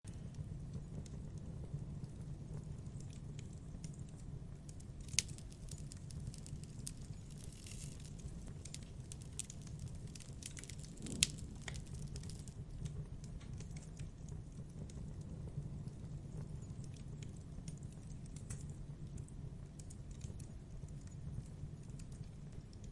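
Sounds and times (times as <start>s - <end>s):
bonfire crackling and popping: 5.1s - 12.6s.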